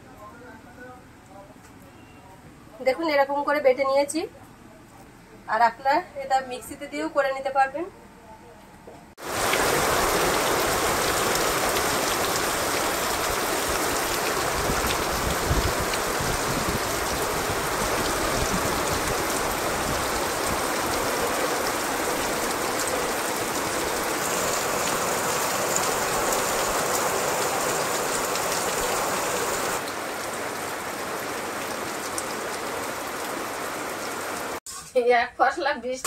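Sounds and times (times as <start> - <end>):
heavy rain pouring: 9.2 - 34.6.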